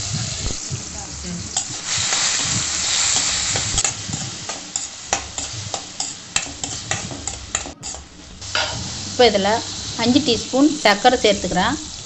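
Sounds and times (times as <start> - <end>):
fruit sizzling in hot fat: 0.0 - 12.0.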